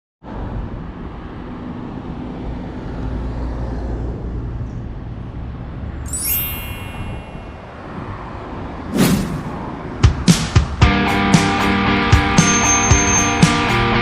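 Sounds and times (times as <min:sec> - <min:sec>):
road traffic rumble: 0:00.2 - 0:14.0
bright ringing ding: 0:06.1 - 0:07.8, 0:12.4 - 0:13.7.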